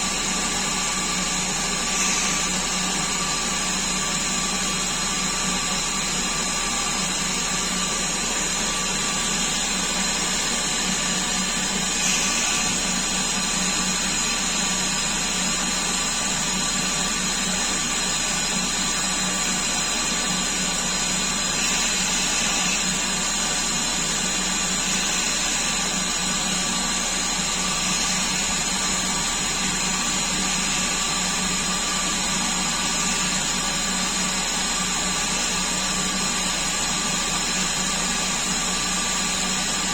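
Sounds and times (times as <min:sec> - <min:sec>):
lathe motor running: 0:00.0 - 0:39.9.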